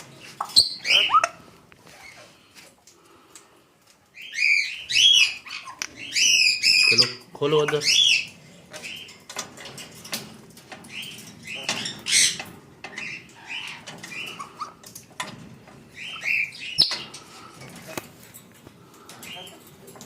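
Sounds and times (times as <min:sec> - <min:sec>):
parrot chirping: 0:00.4 - 0:01.4, 0:04.2 - 0:07.2, 0:15.9 - 0:17.0.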